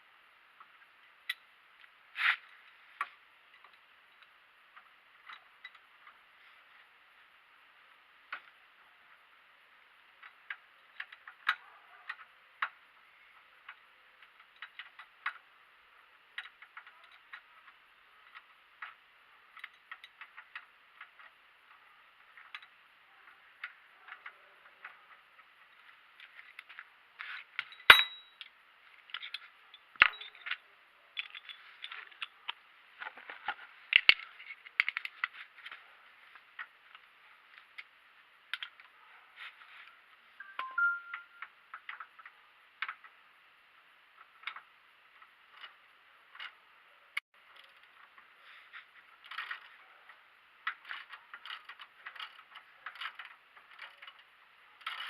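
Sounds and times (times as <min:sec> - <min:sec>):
metal tools clinking: 0:27.6 - 0:28.4.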